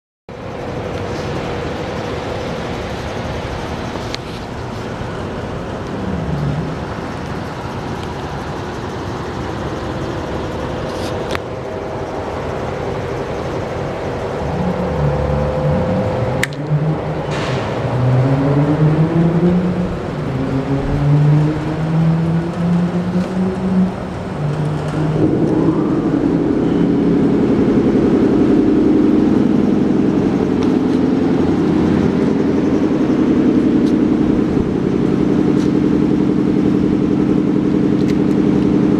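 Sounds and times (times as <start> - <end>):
motorcycle engine revving: 12.2 - 38.9.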